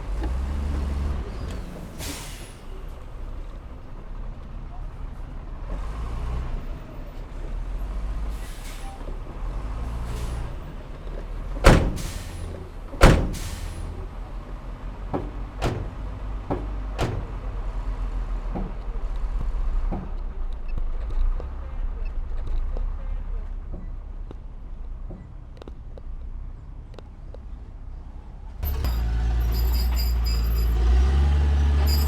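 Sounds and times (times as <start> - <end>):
diesel machinery rumbling: 0.0 - 22.0, 28.2 - 32.0
loud bangs: 11.6 - 14.0, 15.1 - 17.8.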